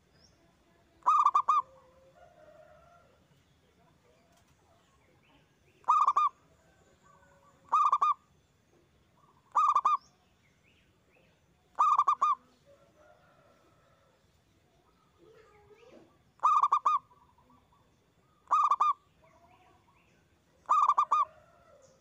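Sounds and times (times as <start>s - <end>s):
dove cooing song: 1.0s - 3.0s, 5.8s - 8.2s, 9.2s - 10.1s, 11.7s - 12.5s, 16.4s - 19.0s, 20.6s - 22.0s.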